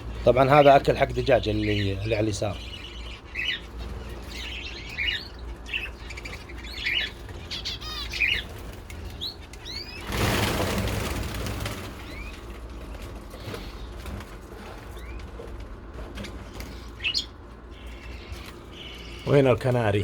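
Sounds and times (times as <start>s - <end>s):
small birds chirping: 0.0s - 20.0s
wings flapping: 3.4s - 18.8s.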